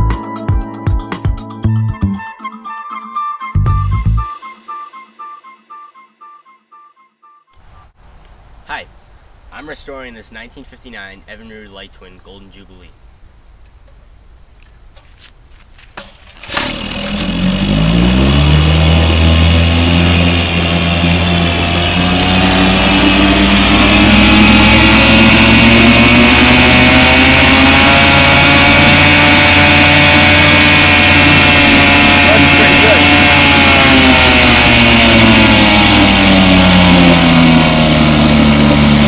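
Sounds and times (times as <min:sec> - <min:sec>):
outboard motor starting and running: 0:16.0 - 0:39.0.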